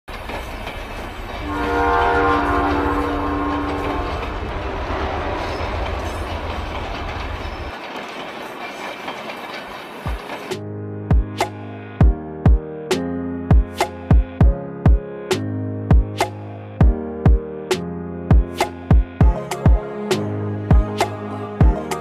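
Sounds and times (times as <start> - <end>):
train rumbling: 0.1 - 12.6, 18.3 - 22.0
train horn: 1.4 - 5.5.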